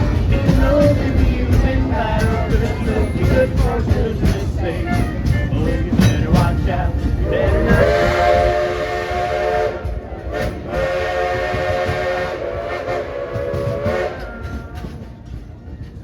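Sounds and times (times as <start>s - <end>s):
train rumble: 0.0s - 16.0s
steam locomotive whistle: 7.2s - 15.1s.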